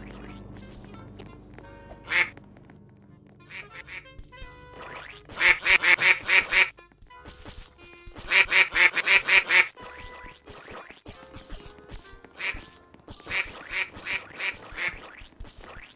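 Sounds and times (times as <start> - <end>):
duck quacking: 2.0 - 2.3, 3.4 - 6.7, 8.2 - 10.0, 12.4 - 12.6, 13.3 - 15.2.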